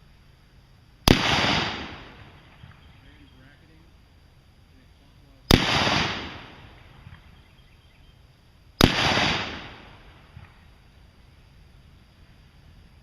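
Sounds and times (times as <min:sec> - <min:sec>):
gunshots with echo: 0:01.1 - 0:02.2, 0:05.5 - 0:06.7, 0:08.8 - 0:10.0.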